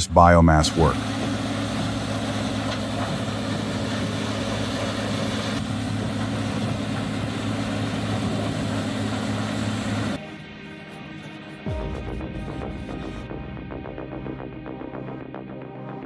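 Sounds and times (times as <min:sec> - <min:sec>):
diesel engine humming: 0:00.0 - 0:10.3.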